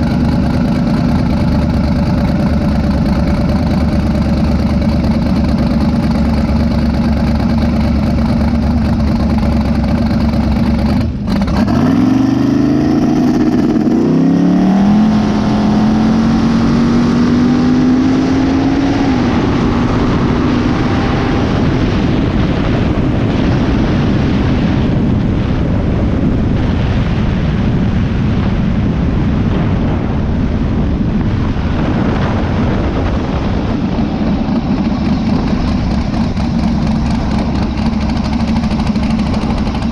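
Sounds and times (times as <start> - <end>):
pickup engine revving: 0.0 - 22.5, 32.8 - 39.9
steady rushing noise: 0.0 - 39.9.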